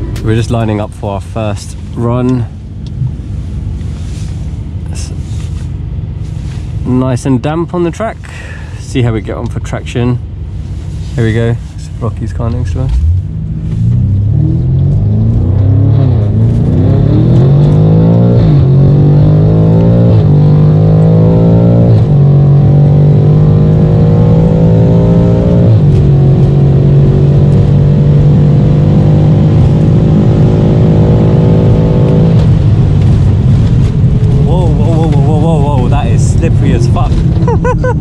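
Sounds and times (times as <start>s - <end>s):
car engine at full throttle: 0.0s - 38.0s.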